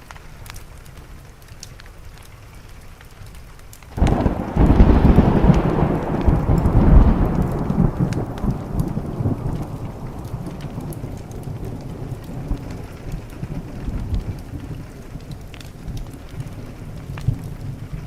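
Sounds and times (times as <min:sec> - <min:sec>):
steady rain: 0:00.0 - 0:18.0
wood fire crackling: 0:00.0 - 0:18.0
thunder rumbling: 0:04.0 - 0:18.0.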